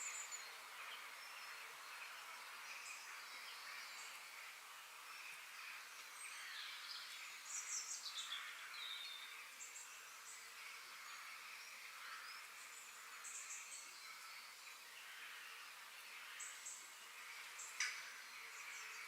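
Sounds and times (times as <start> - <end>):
steady high hiss: 0.0 - 19.0.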